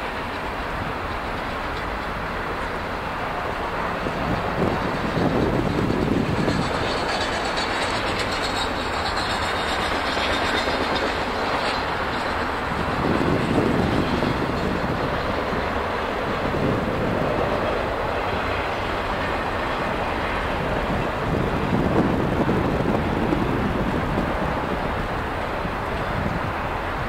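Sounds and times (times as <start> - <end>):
steel wheels running on rails: 0.0 - 27.0.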